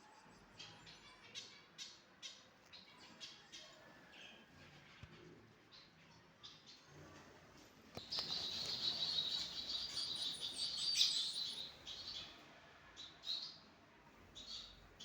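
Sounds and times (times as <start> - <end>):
finches chirping: 8.0 - 12.2.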